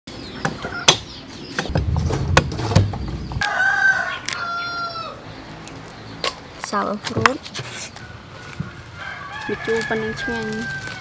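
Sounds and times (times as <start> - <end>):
low rumble: 1.7 - 3.5
rooster crowing: 3.4 - 5.2, 8.7 - 11.0.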